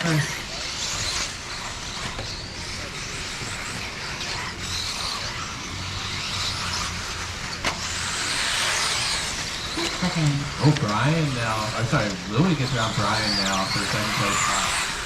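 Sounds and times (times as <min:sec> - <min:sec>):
rc car motor whine: 0:00.0 - 0:15.0.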